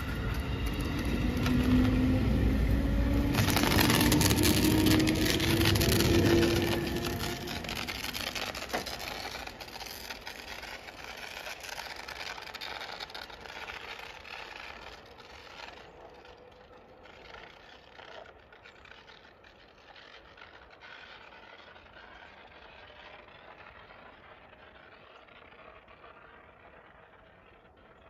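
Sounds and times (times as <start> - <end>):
electric train pulling away: 0.0 - 16.9.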